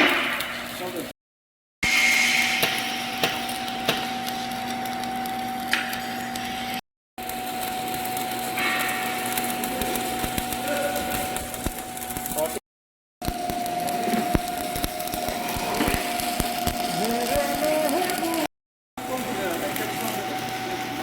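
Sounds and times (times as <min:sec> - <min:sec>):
angle grinder grinding metal pipe: 0:01.8 - 0:06.8, 0:13.9 - 0:18.4.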